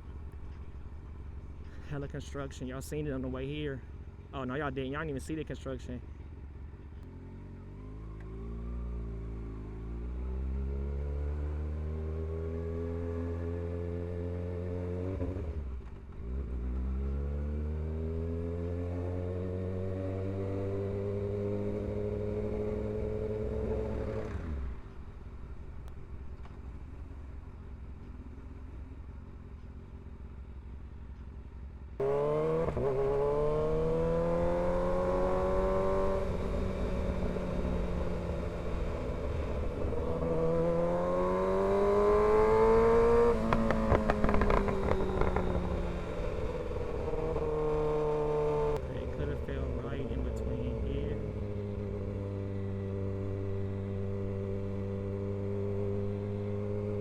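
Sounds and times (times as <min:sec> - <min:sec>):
motorcycle engine accelerating: 0:06.1 - 0:57.0.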